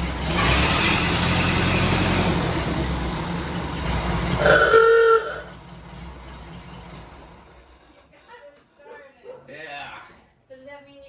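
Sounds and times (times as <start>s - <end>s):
car engine running: 0.0s - 7.9s
short held tone: 4.4s - 5.5s.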